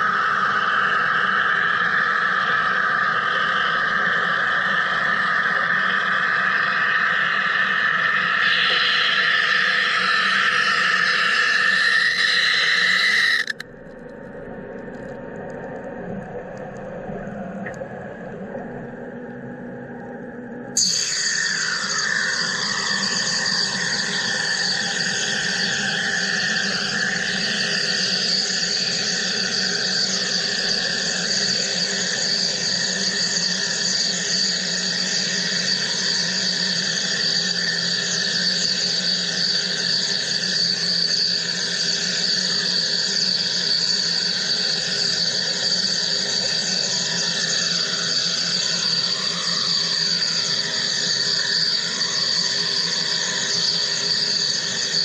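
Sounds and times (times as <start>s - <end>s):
machine high-pitched buzz: 8.4s - 13.7s.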